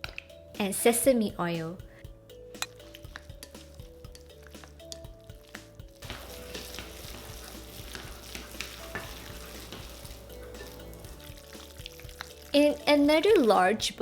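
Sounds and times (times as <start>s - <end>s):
background music with held notes: 0.0s - 14.0s
wet mixture squelching in bowl: 2.6s - 13.5s.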